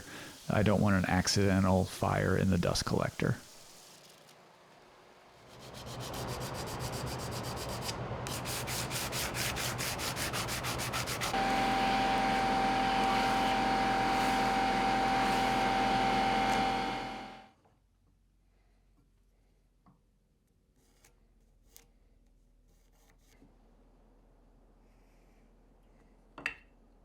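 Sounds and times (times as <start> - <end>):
sander grinding wood: 0.0 - 4.0, 5.6 - 17.4.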